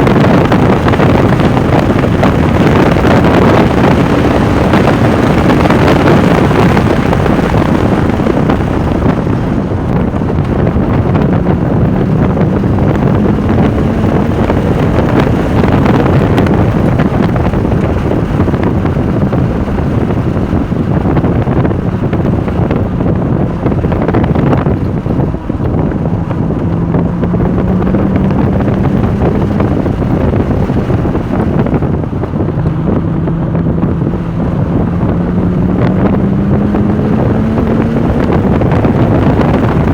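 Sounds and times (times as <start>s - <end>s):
car engine accelerating and slowing: 0.0s - 39.9s
wind noise on microphone: 0.0s - 39.9s.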